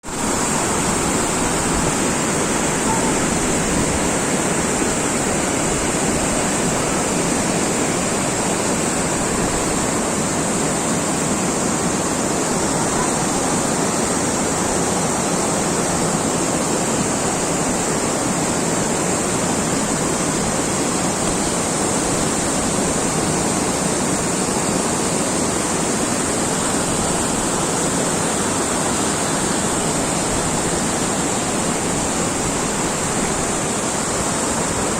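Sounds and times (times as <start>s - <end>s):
rushing water roar: 0.0s - 34.9s.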